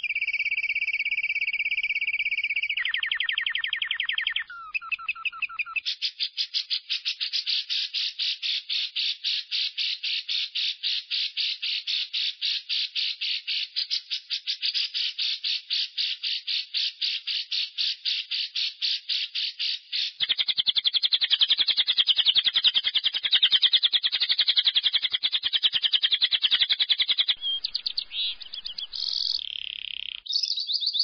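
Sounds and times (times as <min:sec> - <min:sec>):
lovebird rasping chatter: 0:27.1 - 0:30.3.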